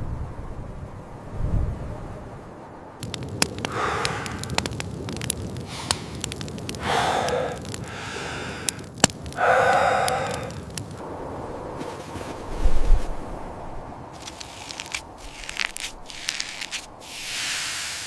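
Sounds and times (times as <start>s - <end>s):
sharp crackles: 3.0s - 11.0s, 11.7s - 18.0s
person breathing hard: 3.7s - 4.7s, 5.6s - 6.2s, 6.8s - 10.8s.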